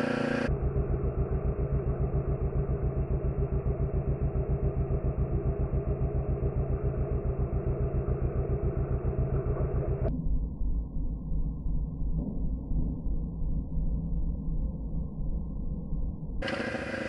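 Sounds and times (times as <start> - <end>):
motorcycle engine running: 0.0 - 10.1, 16.4 - 17.0.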